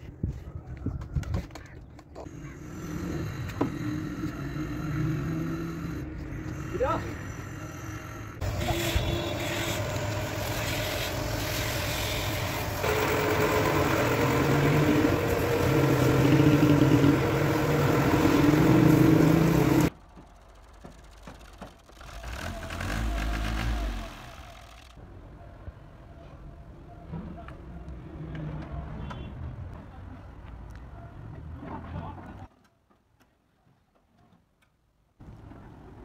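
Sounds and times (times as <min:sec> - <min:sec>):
vehicle engine running: 0:08.1 - 0:25.0.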